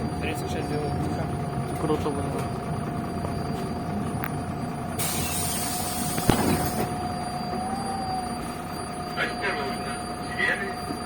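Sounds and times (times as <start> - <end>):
bus drive whine: 0.0 - 11.0
pneumatic air hiss: 5.0 - 6.8.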